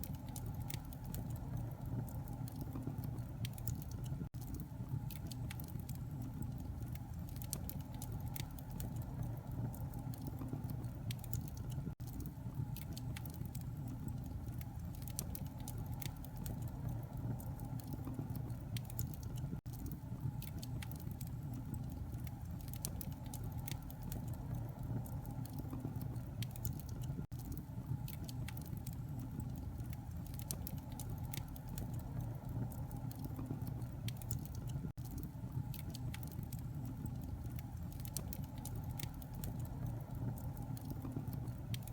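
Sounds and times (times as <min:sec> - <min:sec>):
fire crackling and popping: 0:00.0 - 0:41.9
low rumble of flames: 0:00.0 - 0:41.9.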